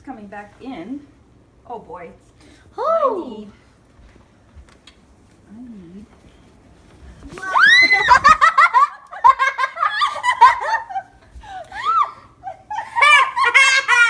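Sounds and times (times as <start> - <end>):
children laughing: 7.4 - 14.0.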